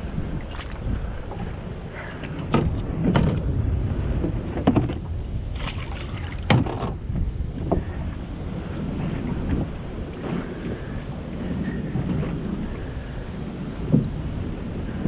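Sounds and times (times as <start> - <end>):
wind buffeting microphone: 0.0 - 15.0
sharp knocks against boat: 2.2 - 3.5, 4.2 - 7.0, 13.9 - 14.2.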